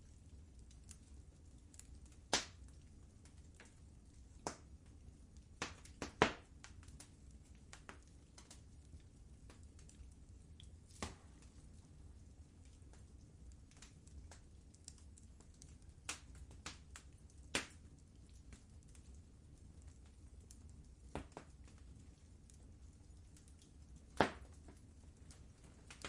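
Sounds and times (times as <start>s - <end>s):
wood fire crackling: 0.0s - 26.0s
sharp pops: 24.2s - 24.5s.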